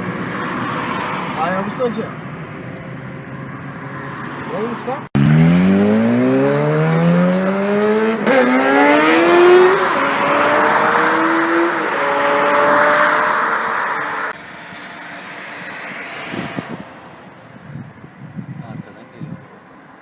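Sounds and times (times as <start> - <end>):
motorcycle engine accelerating: 2.5 - 14.4
rushing noise: 2.7 - 18.1.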